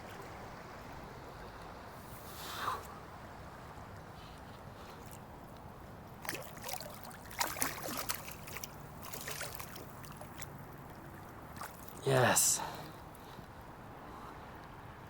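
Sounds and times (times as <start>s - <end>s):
creek water rushing: 2.5s - 13.9s
fish splashing at water surface: 6.2s - 12.0s.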